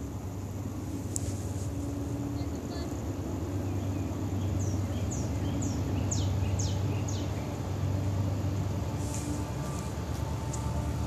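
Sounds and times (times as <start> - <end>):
distant diesel locomotives rumbling: 0.0 - 11.0
bird singing whistled notes: 3.6 - 7.6.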